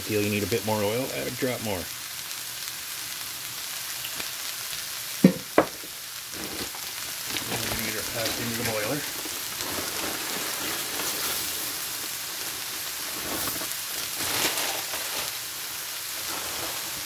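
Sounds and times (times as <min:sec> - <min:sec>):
onions sizzling in a frying pan: 0:00.0 - 0:17.0.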